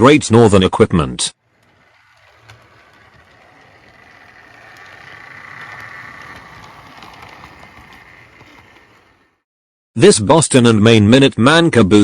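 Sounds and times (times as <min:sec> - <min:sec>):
electric motor whine: 0:01.4 - 0:09.4
wheels clicking over rails: 0:01.4 - 0:09.4.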